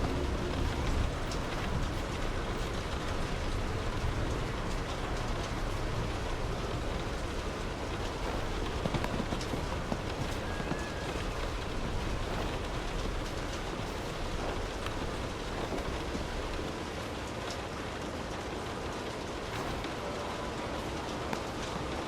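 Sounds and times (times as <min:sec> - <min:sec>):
distant thunder rumble: 0:00.0 - 0:16.7
heavy rain: 0:00.0 - 0:22.0.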